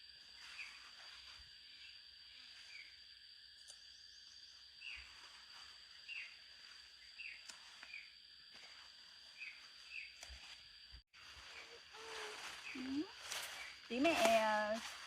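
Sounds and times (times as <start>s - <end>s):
high insect whine: 0.0s - 15.0s
faint voice: 11.6s - 13.2s.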